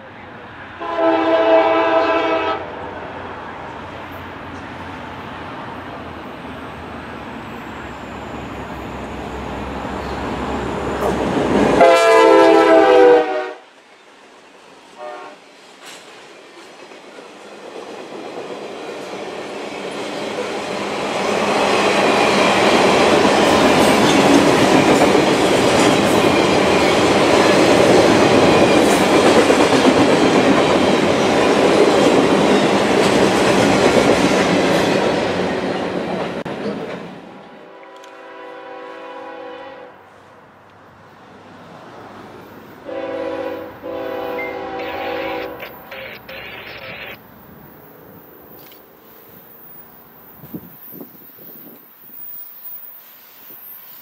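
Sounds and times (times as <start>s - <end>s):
locomotive horn blasts: 0.8s - 2.7s, 11.8s - 13.6s, 15.0s - 15.4s, 37.7s - 40.0s, 42.8s - 45.6s
train rumble: 15.4s - 39.4s.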